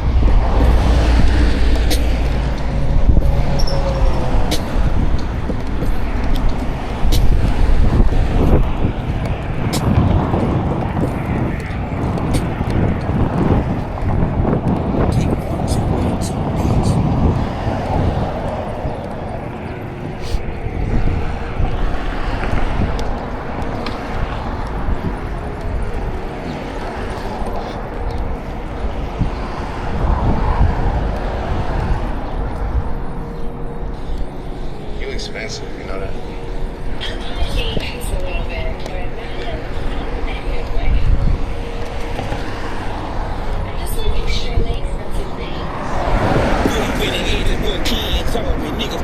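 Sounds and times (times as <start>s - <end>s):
wind rushing: 0.0s - 49.0s
bike clicks and rattles: 0.4s - 32.6s.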